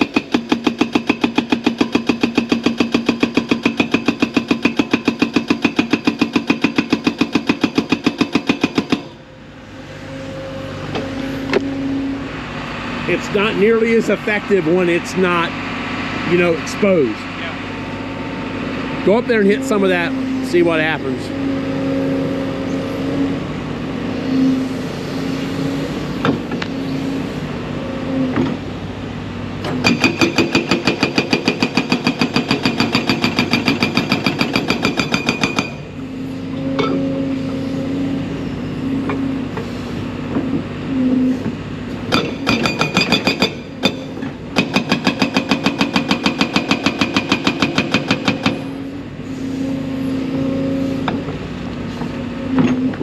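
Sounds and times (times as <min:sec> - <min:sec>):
hydraulic breaker hammering rock: 0:00.0 - 0:09.2, 0:29.6 - 0:36.0, 0:41.5 - 0:48.8
diesel engine running: 0:00.0 - 0:53.0.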